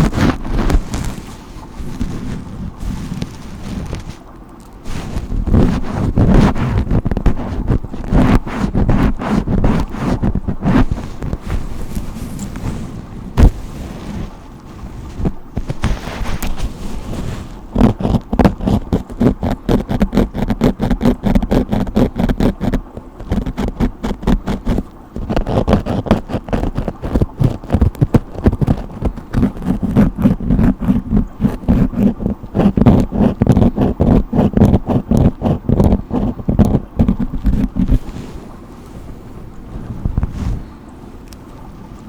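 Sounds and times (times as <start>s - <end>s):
scratchy brush strokes: 0.0s - 40.7s.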